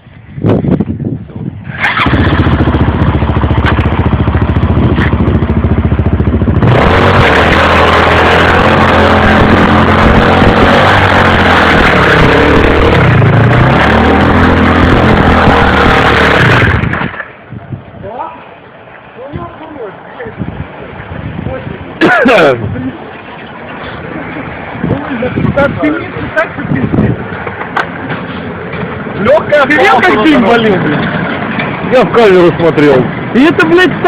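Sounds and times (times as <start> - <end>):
single-cylinder engine running hard: 1.7 - 17.4
loud rushing noise: 1.7 - 18.6.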